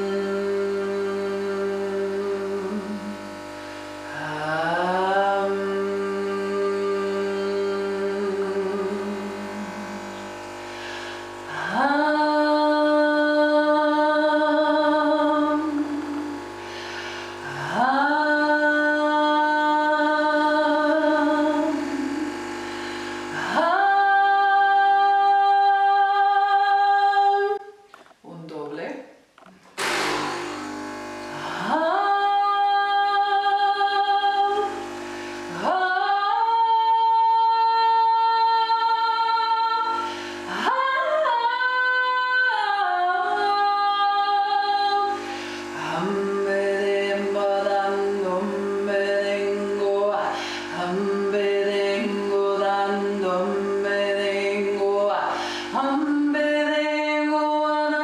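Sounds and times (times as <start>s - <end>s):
coffee maker humming: 1.4s - 13.0s, 14.5s - 24.2s, 29.8s - 36.5s.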